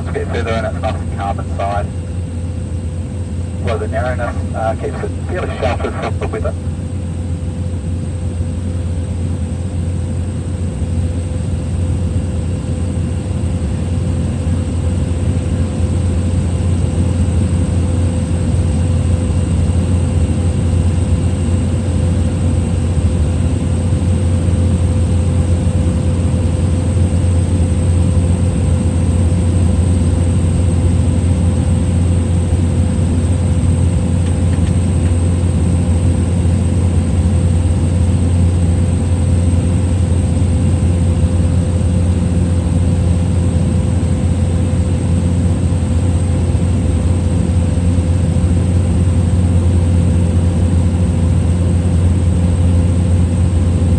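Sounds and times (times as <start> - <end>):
faint steady whine: 0.0 - 6.9
plane engine droning in cabin: 0.0 - 53.9.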